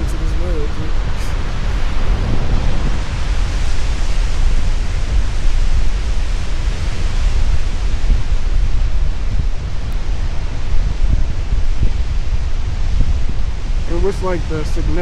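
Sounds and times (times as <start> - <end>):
river and waterfall rushing: 0.0 - 15.0
wind buffeting microphone: 0.0 - 15.0.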